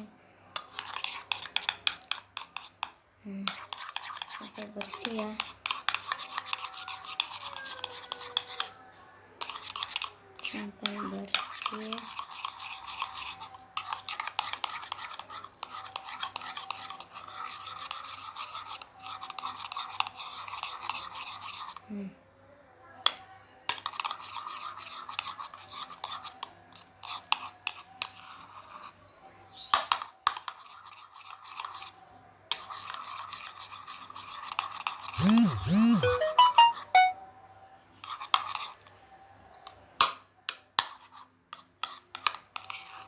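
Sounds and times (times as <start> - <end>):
spoon scraping slime in bowl: 0.6 - 8.7, 9.4 - 21.8, 23.8 - 28.9, 32.5 - 37.1, 40.8 - 43.0.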